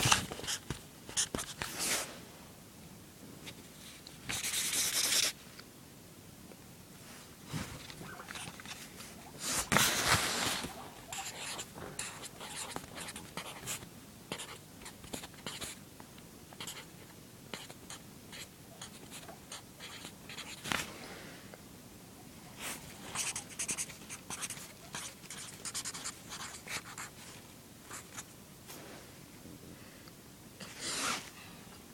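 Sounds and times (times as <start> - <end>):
pencil scratching on paper: 4.3 - 5.3, 8.0 - 15.8, 16.6 - 16.9, 17.5 - 20.6, 23.1 - 27.1.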